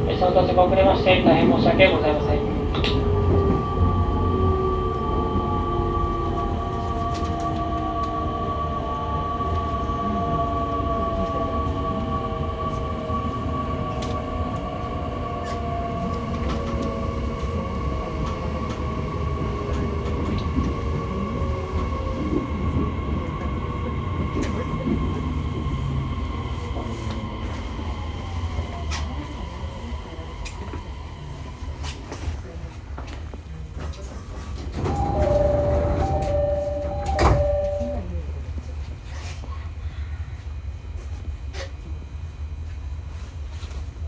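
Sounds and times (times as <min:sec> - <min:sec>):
train motor tones falling in pitch: 0:34.8 - 0:38.2.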